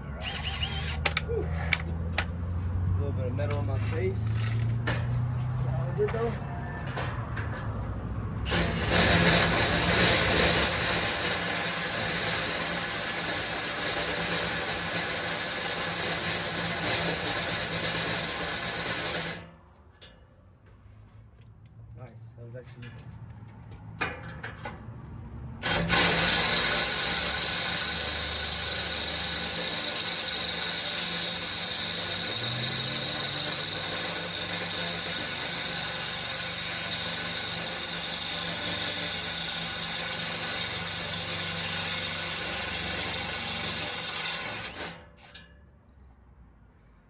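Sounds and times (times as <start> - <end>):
power drill boring through steel: 0.0 - 1.8, 5.7 - 7.1, 8.4 - 19.5, 25.6 - 45.4.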